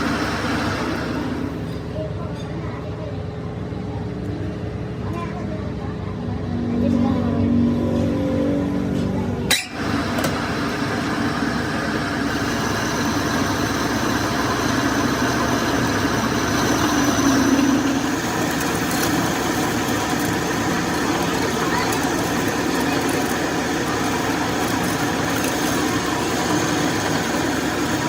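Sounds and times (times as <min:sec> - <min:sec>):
metal lathe running: 0:00.0 - 0:02.0, 0:07.7 - 0:28.0.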